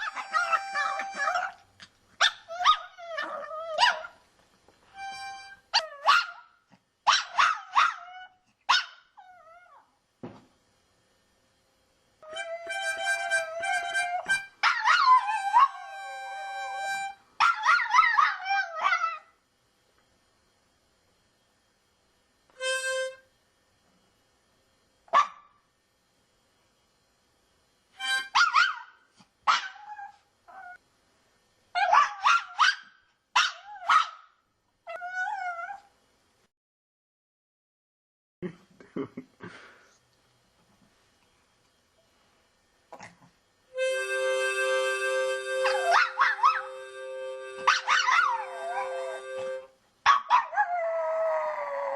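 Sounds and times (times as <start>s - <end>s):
harmonica chords: 0.0s - 1.4s, 4.9s - 5.7s, 12.2s - 14.6s, 15.2s - 17.3s, 22.6s - 23.2s, 28.0s - 28.3s, 43.7s - 49.7s
dog barking: 0.0s - 1.6s, 5.8s - 6.5s, 7.1s - 8.1s, 8.7s - 9.1s, 25.1s - 25.5s, 28.4s - 28.9s, 29.5s - 29.9s, 31.8s - 34.3s, 45.6s - 46.7s, 47.7s - 48.9s, 50.1s - 50.6s
dog howling and yelping: 0.0s - 1.6s, 2.5s - 4.1s, 12.2s - 15.9s, 45.6s - 46.7s, 47.6s - 49.6s, 50.3s - 51.9s.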